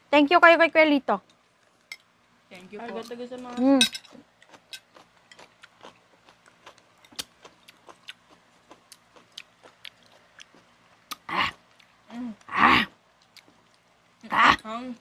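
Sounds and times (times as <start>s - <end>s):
chewing and mouth clicks: 4.1s - 12.0s, 13.2s - 13.9s.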